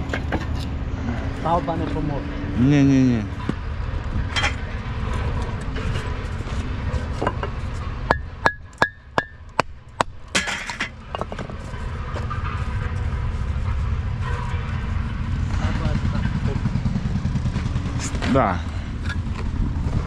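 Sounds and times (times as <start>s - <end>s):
low rumble: 0.0s - 20.0s
loud clatter: 4.1s - 18.4s.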